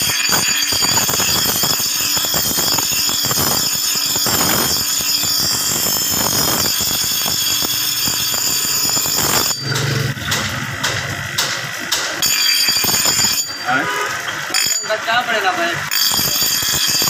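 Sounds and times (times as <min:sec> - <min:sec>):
power tool screeching on steel: 0:00.0 - 0:10.1, 0:12.2 - 0:15.1, 0:15.8 - 0:17.0.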